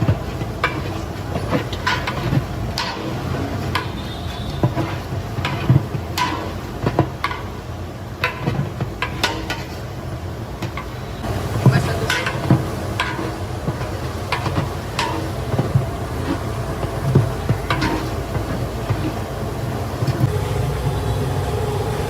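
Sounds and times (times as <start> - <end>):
metal ladle scraping a pot: 0.0 - 7.6, 12.1 - 19.3
low rumble and hiss: 0.0 - 22.0.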